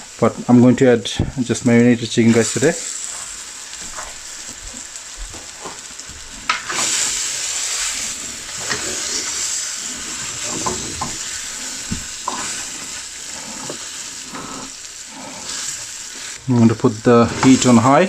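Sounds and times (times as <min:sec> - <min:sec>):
chicken sizzling in a pan: 0:00.0 - 0:18.0
spoon stirring and scraping: 0:07.8 - 0:16.4.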